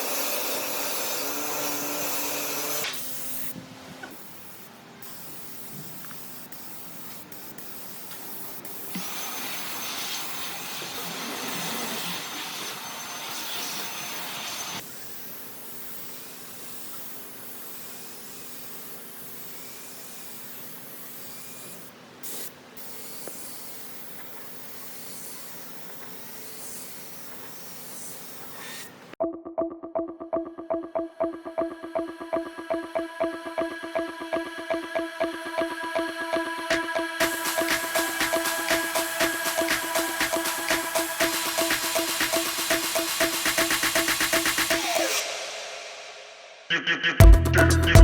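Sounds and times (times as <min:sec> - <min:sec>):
steady hissing: 0:37.2 - 0:46.3
louder hiss: 0:37.2 - 0:46.7.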